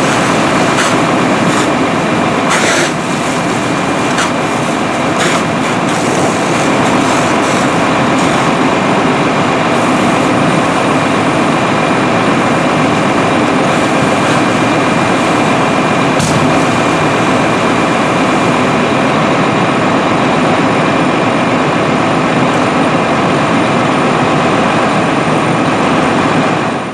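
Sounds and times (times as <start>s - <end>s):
road rumble: 0.0s - 20.6s
fire engine running: 0.0s - 26.9s.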